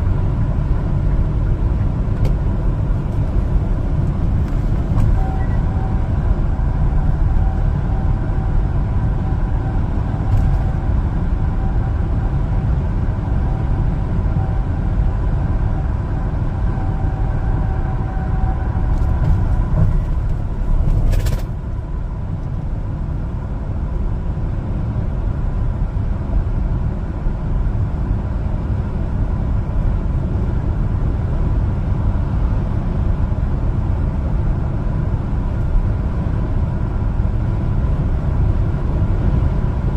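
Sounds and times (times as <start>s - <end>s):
truck engine and road rumble: 0.0s - 39.9s
faint whine: 2.3s - 22.7s.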